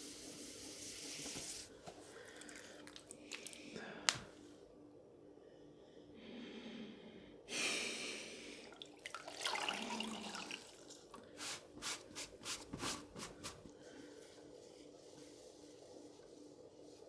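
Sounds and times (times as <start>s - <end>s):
water splashing and sloshing: 8.7s - 13.7s.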